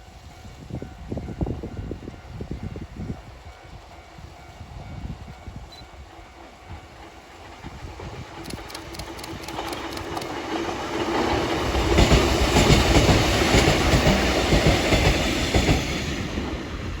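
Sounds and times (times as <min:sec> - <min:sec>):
train wheels clattering over rail joints: 0:06.4 - 0:16.5.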